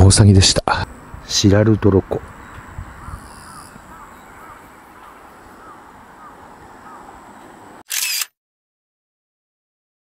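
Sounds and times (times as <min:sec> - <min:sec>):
outdoor background noise: 0:00.0 - 0:08.4
bird calling: 0:02.0 - 0:07.8.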